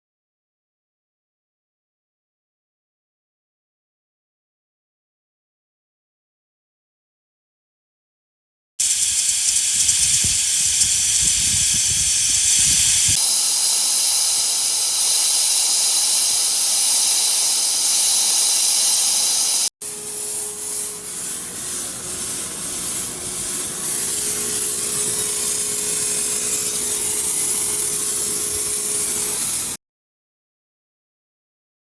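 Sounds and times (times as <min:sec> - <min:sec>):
pressurised jet hissing: 0:08.8 - 0:19.7.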